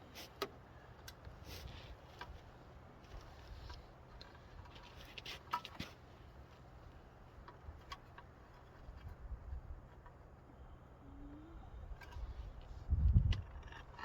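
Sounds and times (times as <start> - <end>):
low steady rumble: 6.0 - 14.0.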